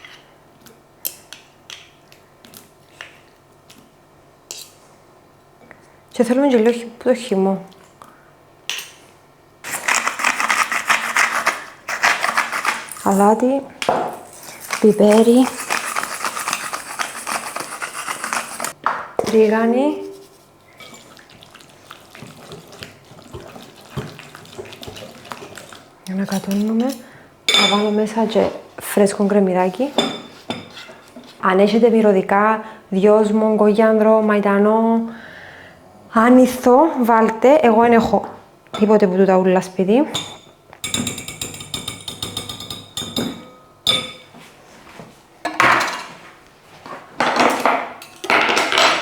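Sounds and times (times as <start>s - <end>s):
spoon stirring wet dressing: 9.7s - 28.4s
utensil striking ringing bowl: 40.2s - 44.3s.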